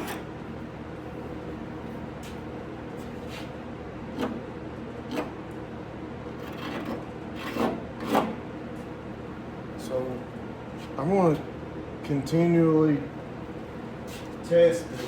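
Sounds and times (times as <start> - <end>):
steady background hum: 0.0 - 15.0
hand tool scraping body filler: 6.4 - 8.4.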